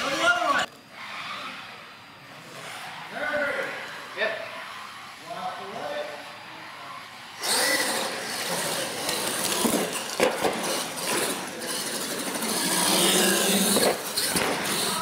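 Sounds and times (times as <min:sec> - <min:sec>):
toy truck motor whine: 0:07.4 - 0:15.0
tyres on concrete floor: 0:07.4 - 0:15.0.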